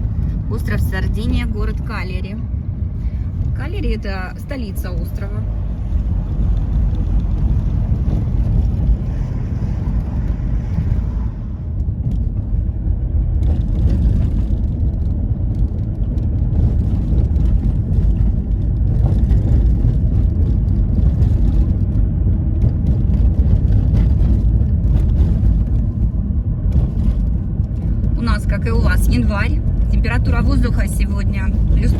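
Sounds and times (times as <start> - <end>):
car interior engine and tyre rumble: 0.0 - 31.9.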